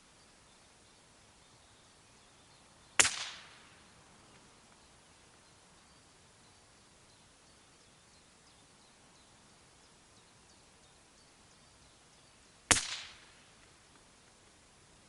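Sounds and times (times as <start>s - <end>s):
rifle shot: 3.0s - 3.8s, 12.7s - 13.4s.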